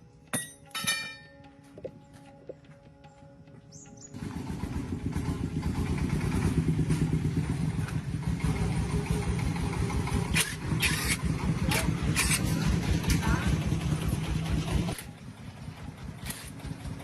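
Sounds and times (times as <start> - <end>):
vehicle engine rough rapid beat: 3.8 - 17.0.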